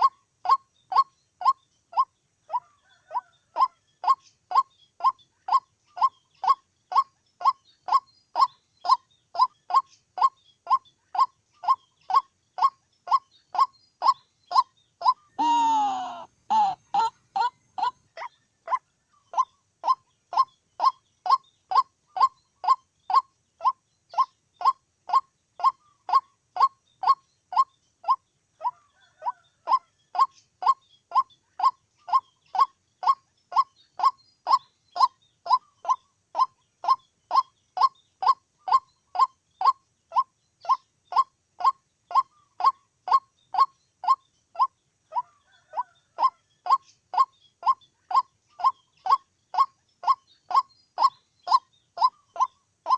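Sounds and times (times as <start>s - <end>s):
waterhen calling kwok notes: 14.6s - 17.9s.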